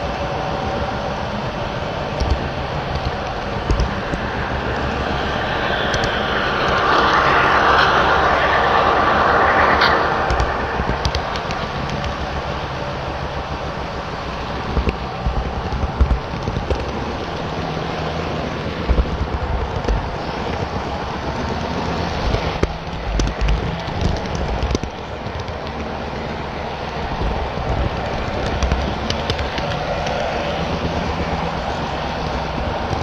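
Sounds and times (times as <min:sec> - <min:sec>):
sharp clicks: 0:02.2 - 0:12.4.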